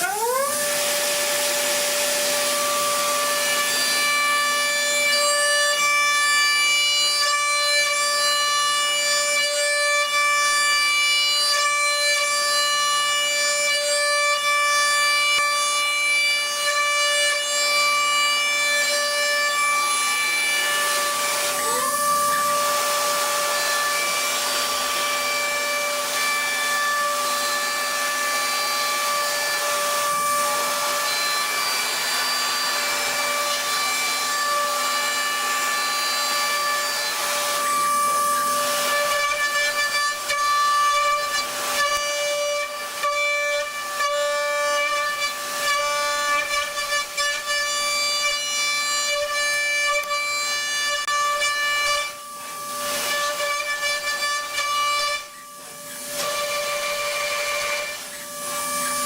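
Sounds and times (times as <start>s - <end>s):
hiss of metal cutting: 0.0s - 5.8s, 18.8s - 59.0s
lathe spindle whine: 0.0s - 9.0s, 17.4s - 44.0s, 50.0s - 59.0s.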